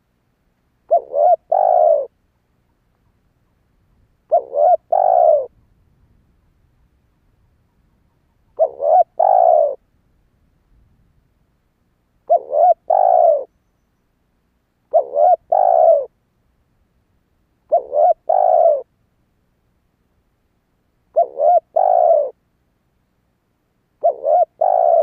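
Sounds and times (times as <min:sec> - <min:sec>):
dove cooing: 0:00.9 - 0:02.2, 0:03.0 - 0:05.6, 0:07.1 - 0:09.8, 0:12.3 - 0:13.5, 0:14.9 - 0:16.2, 0:17.7 - 0:18.9, 0:21.1 - 0:22.4, 0:24.0 - 0:25.0.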